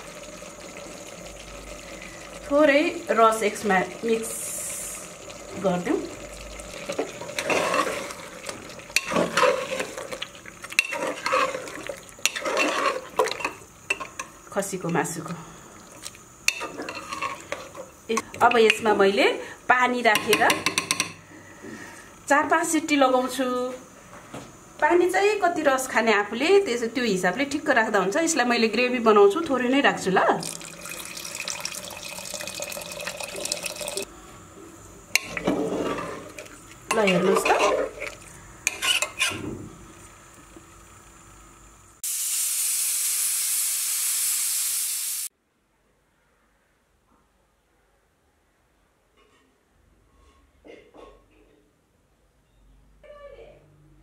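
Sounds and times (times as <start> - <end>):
water pouring into a pot: 0.0 - 14.2, 30.3 - 34.1
spoon scraping a cooking pot: 6.9 - 8.3, 8.9 - 14.3, 16.5 - 18.4, 35.1 - 39.4.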